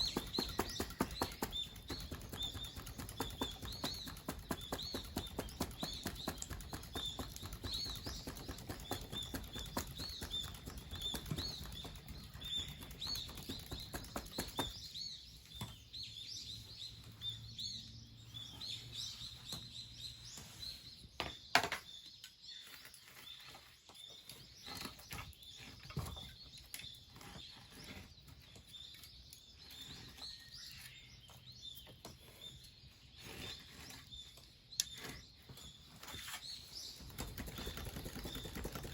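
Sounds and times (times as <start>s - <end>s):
fast rhythmic flapping: 0.0s - 14.8s, 37.0s - 38.9s
bird chirping: 0.0s - 38.9s.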